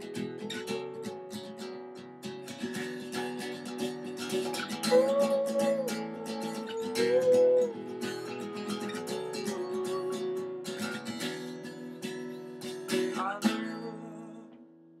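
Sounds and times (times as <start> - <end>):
acoustic guitar strumming chords: 0.0 - 14.8
held melody line: 3.6 - 12.0.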